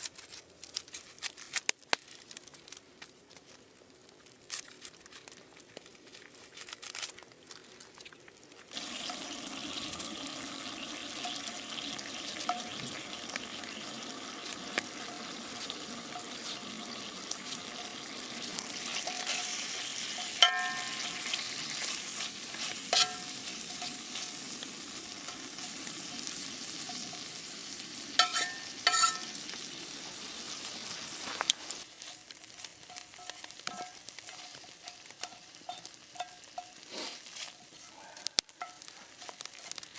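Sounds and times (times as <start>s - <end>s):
food sizzling in a pan: 8.7s - 39.9s
utensil clinking against pan: 11.2s - 13.1s, 19.0s - 24.3s, 28.2s - 29.4s, 32.8s - 36.8s.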